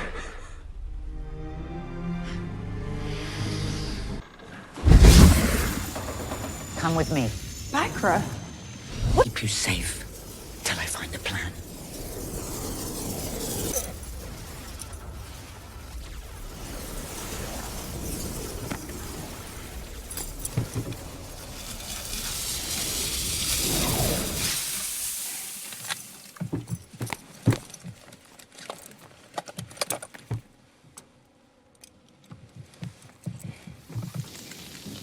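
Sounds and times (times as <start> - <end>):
rushing noise: 4.8 - 25.1.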